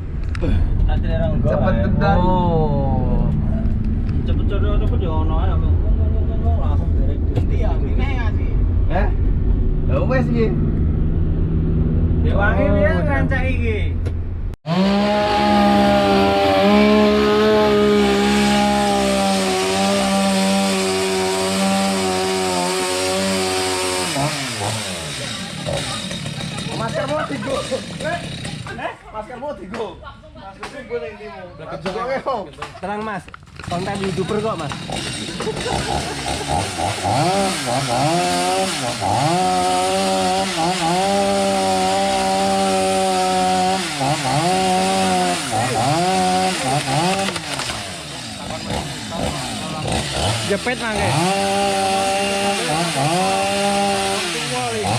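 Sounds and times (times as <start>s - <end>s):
chainsaw running at full throttle: 14.6s - 28.9s, 33.6s - 54.9s.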